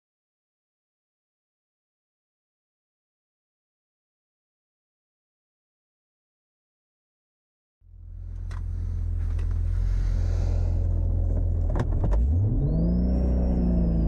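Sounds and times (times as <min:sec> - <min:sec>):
high turbo whine: 0:07.9 - 0:14.0
car engine revving: 0:08.0 - 0:14.0.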